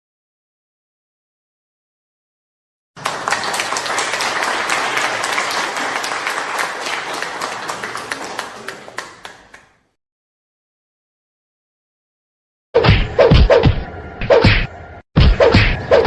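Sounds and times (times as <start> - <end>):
crowd applauding: 3.0 - 10.0.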